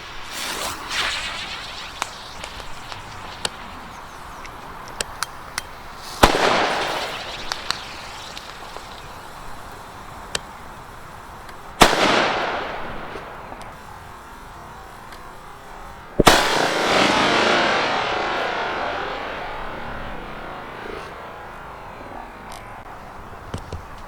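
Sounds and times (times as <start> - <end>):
firecracker bangs echoing: 0.0 - 9.5, 11.8 - 13.4, 16.2 - 21.2
small sharp firecracker cracks: 0.3 - 10.5.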